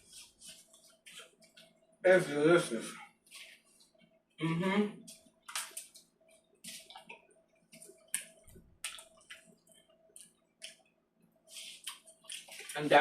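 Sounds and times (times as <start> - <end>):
person chewing food: 5.1 - 12.8.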